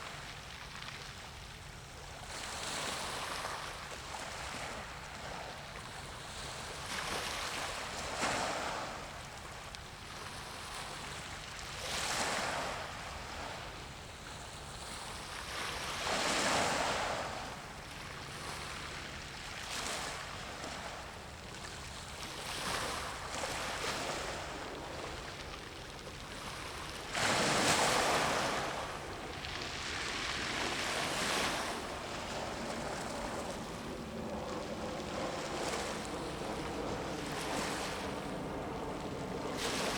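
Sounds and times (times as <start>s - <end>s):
small waves washing in: 10.1s - 39.9s.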